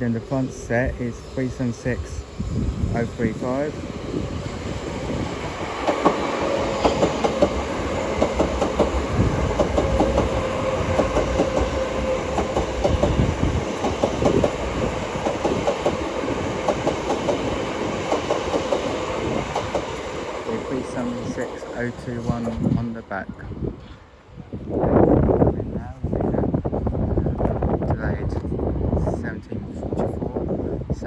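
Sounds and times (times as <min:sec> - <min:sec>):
steady electric train tone: 0:00.0 - 0:29.8
train wheels clattering over rail joints: 0:05.7 - 0:20.0.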